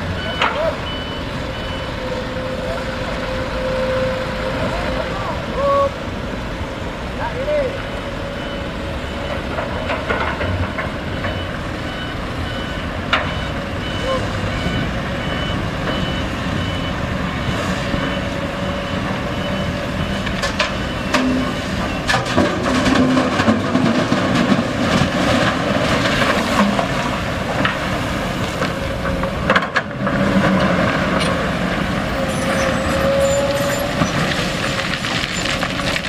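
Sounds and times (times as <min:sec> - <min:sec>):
reversing beeper: 0:00.0 - 0:05.9, 0:07.9 - 0:22.2, 0:32.1 - 0:35.8
machinery clanks and knocks: 0:09.1 - 0:13.6, 0:20.1 - 0:32.1.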